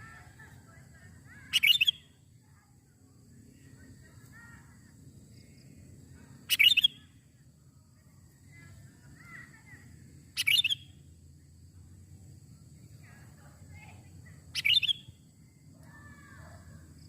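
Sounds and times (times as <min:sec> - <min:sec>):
soft bird chirps: 0:01.4 - 0:02.2, 0:06.5 - 0:07.2, 0:08.3 - 0:11.1, 0:14.3 - 0:16.8.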